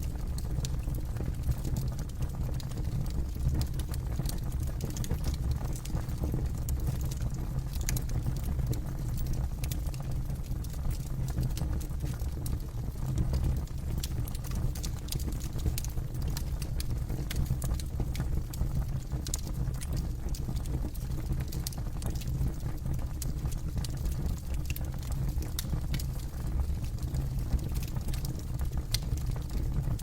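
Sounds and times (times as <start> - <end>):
low rumble of flames: 0.0 - 30.0
wood crackling and popping: 0.1 - 30.0.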